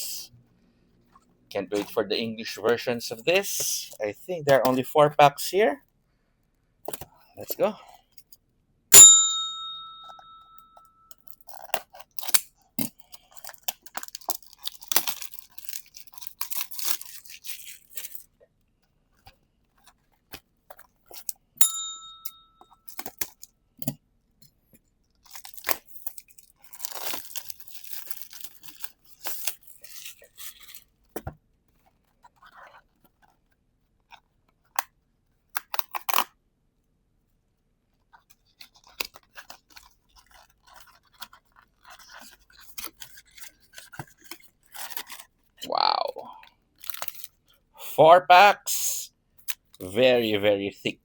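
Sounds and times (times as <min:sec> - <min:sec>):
short sharp ding: 0:09.0 - 0:10.9
plastic shrink-wrap tearing and crinkling: 0:11.3 - 0:18.4, 0:25.2 - 0:31.1, 0:35.5 - 0:36.3, 0:38.2 - 0:45.6, 0:46.8 - 0:47.6.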